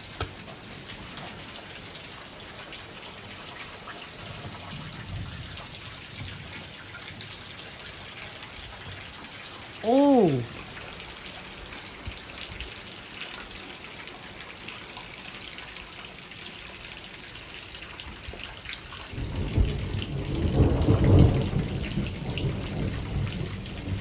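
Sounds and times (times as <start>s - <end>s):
steady rain falling: 0.0s - 24.0s
deep rolling thunder: 19.1s - 24.0s.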